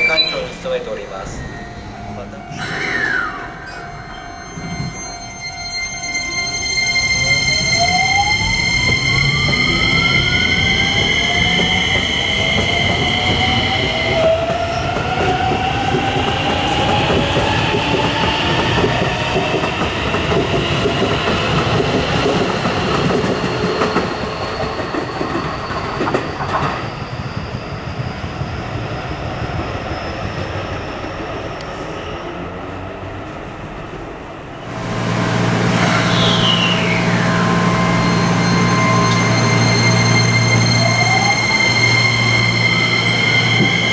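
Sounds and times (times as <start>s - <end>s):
rail and wheel rumble: 0.0s - 43.9s
train inverter and motors whining: 34.6s - 43.9s.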